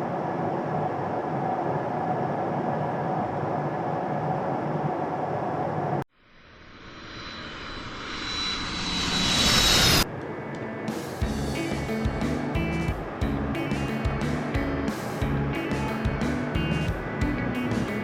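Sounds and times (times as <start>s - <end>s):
airliner drone: 0.0s - 18.0s
jet engines whining: 6.7s - 18.0s.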